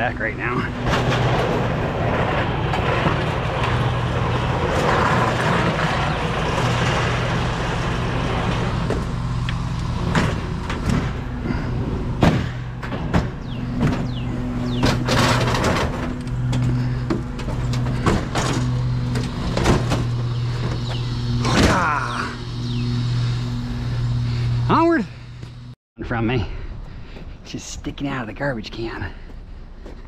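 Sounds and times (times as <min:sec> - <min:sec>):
vehicle engine humming: 0:00.0 - 0:30.0
sharp knocks and clatters: 0:00.8 - 0:11.5, 0:12.2 - 0:21.7.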